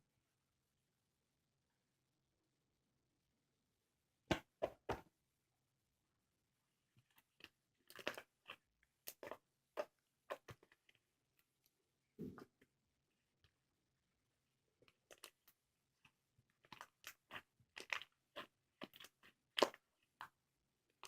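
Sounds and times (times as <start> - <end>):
slime squelch: 6.8 - 21.0.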